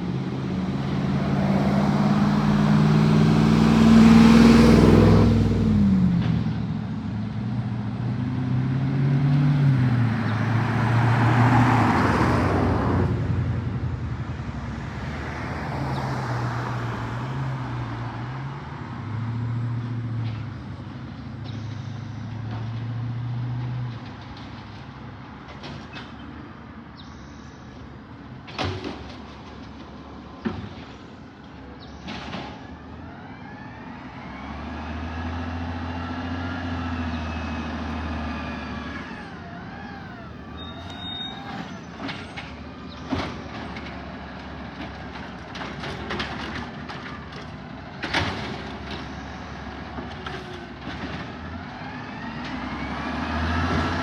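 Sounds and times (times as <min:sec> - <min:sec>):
garbage truck engine running: 0:37.9 - 0:52.9.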